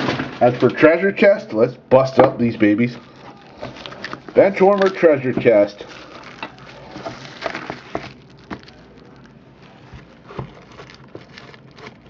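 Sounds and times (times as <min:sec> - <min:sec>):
packaging rustling: 0:02.6 - 0:12.0
card box being opened: 0:02.9 - 0:12.0.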